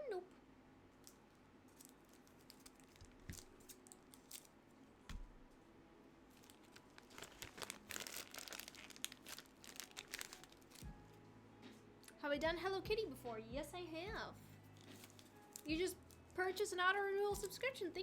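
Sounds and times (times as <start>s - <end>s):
plastic crinkling and clicking: 1.0s - 4.5s, 6.3s - 10.9s, 14.8s - 16.4s.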